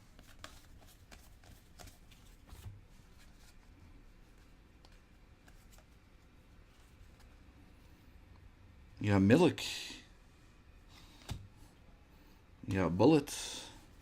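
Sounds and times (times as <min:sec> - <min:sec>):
trading cards flipped by hand: 0:00.1 - 0:03.6.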